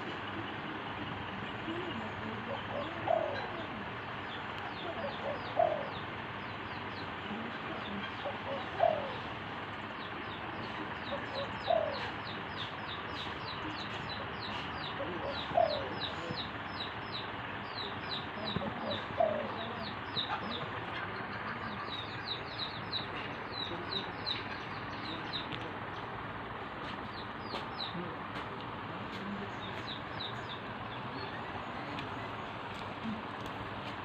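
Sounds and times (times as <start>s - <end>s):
dove cooing: 0.0s - 16.6s, 17.8s - 24.5s.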